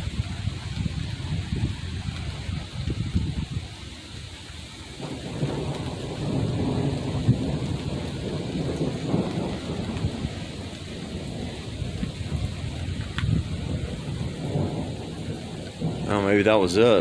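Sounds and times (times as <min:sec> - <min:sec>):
rain falling: 0:00.0 - 0:17.0
thunder rumbling: 0:00.0 - 0:17.0.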